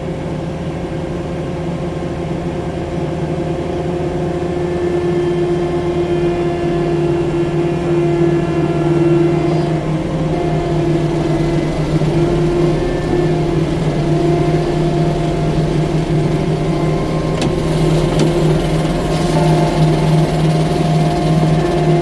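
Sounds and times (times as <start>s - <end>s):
diesel engine running: 6.0s - 22.0s.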